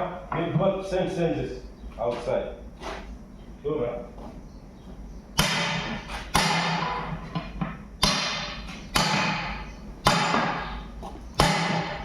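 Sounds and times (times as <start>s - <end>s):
hammer striking metal wheel: 5.4s - 10.8s, 11.4s - 12.0s.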